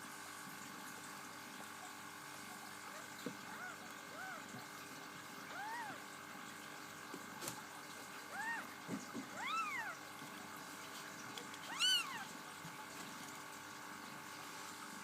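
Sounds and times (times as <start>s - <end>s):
steady background hum: 0.0s - 15.0s
kittens meowing: 2.8s - 4.6s, 5.5s - 6.0s, 8.3s - 8.7s, 9.3s - 10.0s, 11.6s - 12.3s.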